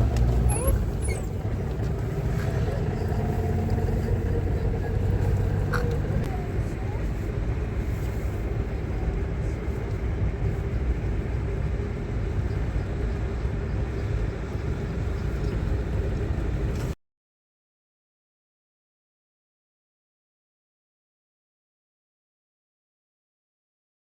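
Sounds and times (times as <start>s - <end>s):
road vehicle rumble: 0.0s - 17.0s.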